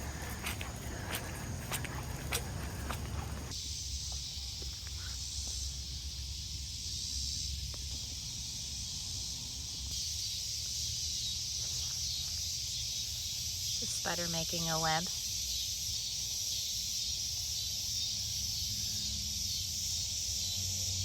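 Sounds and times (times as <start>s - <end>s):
footsteps: 0.0s - 3.5s
insects buzzing: 0.0s - 21.0s.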